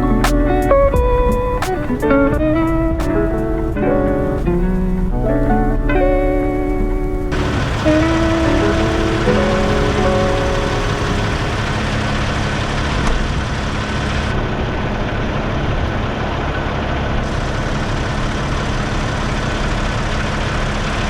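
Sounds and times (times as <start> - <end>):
road noise: 0.0 - 21.0
diesel truck engine running: 7.3 - 21.0.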